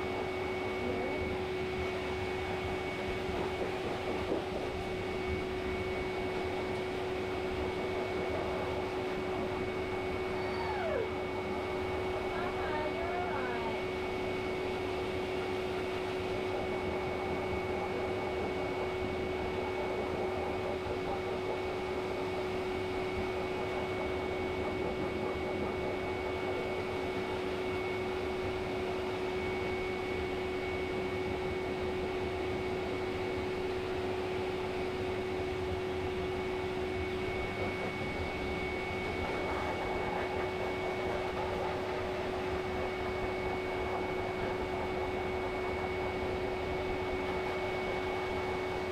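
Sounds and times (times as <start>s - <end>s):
small electric motor running: 0.0s - 48.9s.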